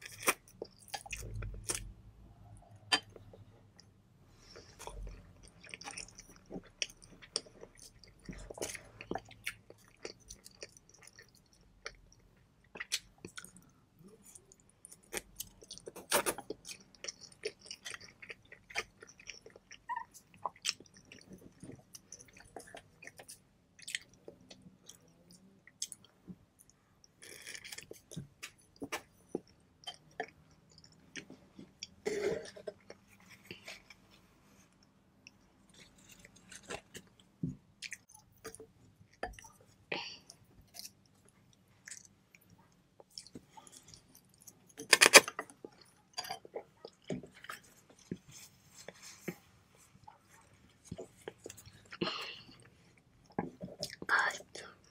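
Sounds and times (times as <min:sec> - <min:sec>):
person chewing noodles: 0:00.0 - 0:01.9, 0:04.4 - 0:33.9, 0:37.8 - 0:54.9.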